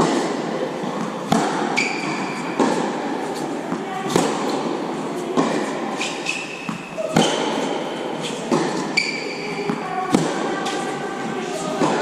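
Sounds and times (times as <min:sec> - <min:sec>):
racket hitting tennis ball: 0:00.0 - 0:12.0
shoe squeaks on court: 0:01.7 - 0:02.6, 0:05.9 - 0:07.5, 0:08.2 - 0:09.9.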